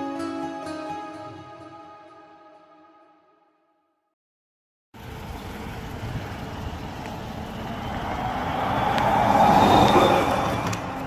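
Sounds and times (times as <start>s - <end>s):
vehicle driving past: 5.0s - 11.0s.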